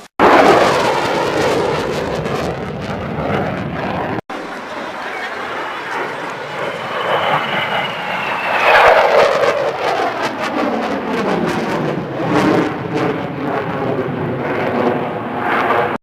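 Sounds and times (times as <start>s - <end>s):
aircraft roar flying past: 0.2s - 16.0s
high whine falling in pitch: 2.0s - 9.7s.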